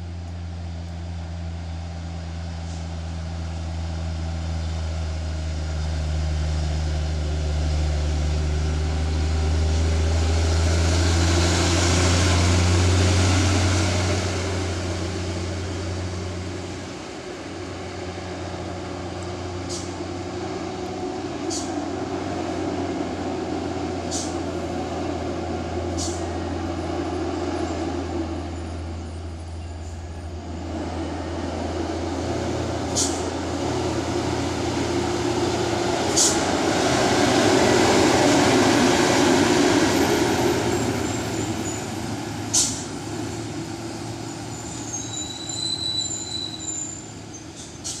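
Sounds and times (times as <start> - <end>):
diesel truck engines running: 0.0 - 48.0
truck passing: 0.0 - 48.0
short sharp clicks or hisses: 24.1 - 24.4, 36.1 - 36.5, 42.5 - 42.9.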